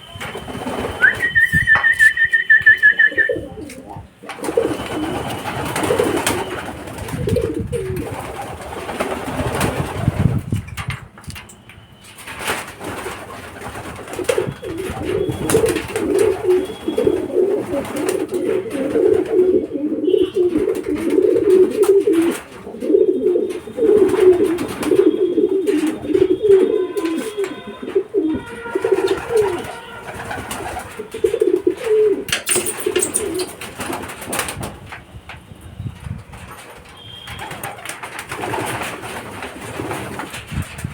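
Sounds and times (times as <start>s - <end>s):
pigeons cooing: 0.0s - 9.8s, 14.1s - 34.1s.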